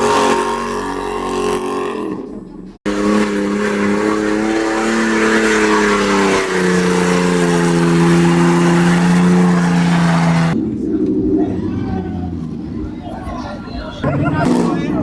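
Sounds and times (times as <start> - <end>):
engine droning at high revs: 0.0 - 10.8.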